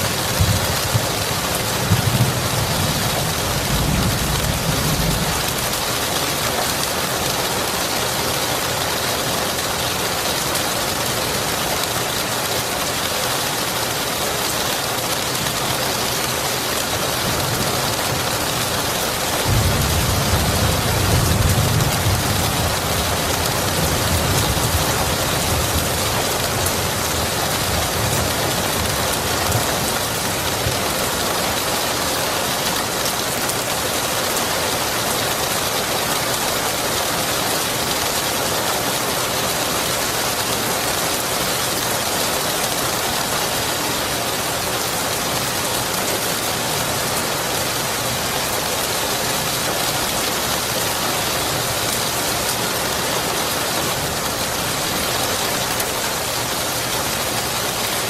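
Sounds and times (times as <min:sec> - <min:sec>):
low thunder rumbles: 0:00.0 - 0:05.9, 0:19.4 - 0:30.7
rain hissing: 0:00.0 - 0:58.0.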